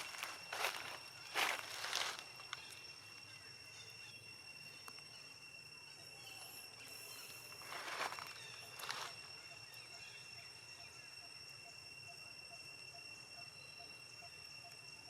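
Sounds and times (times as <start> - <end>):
footsteps: 0.0 - 2.7, 7.6 - 9.2
faint high-pitched whine: 0.0 - 15.0
low outdoor ambience: 0.0 - 15.0.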